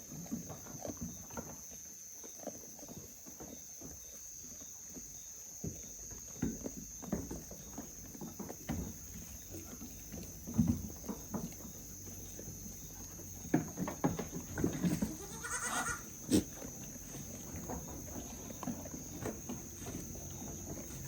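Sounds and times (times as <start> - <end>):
goat bleating: 14.9 - 16.6.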